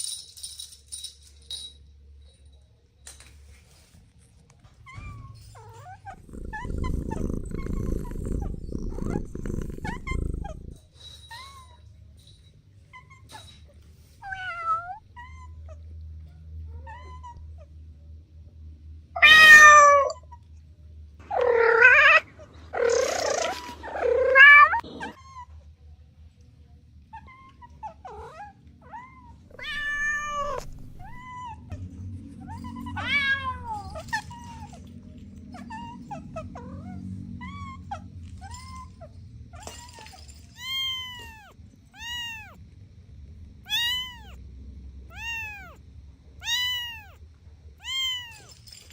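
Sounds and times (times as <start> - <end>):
kittens meowing: 6.1 - 10.8, 29.5 - 31.6, 40.6 - 42.6, 43.7 - 44.4, 45.1 - 45.8, 46.4 - 47.2, 47.8 - 48.5.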